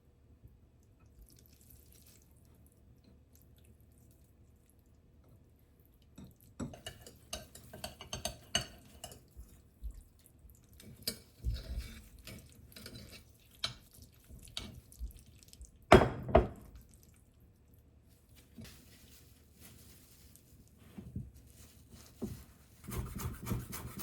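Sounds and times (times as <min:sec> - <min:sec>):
dishes and utensils clicking: 0:06.2 - 0:09.2.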